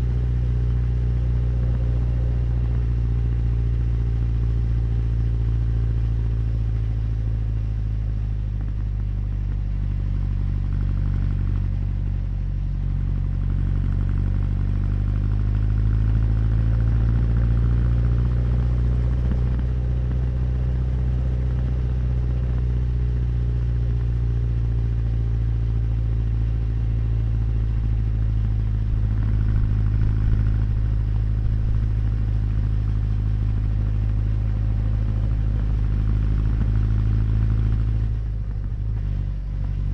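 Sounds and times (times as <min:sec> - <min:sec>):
motorcycle engine cruising: 0:13.6 - 0:25.4, 0:26.3 - 0:39.9.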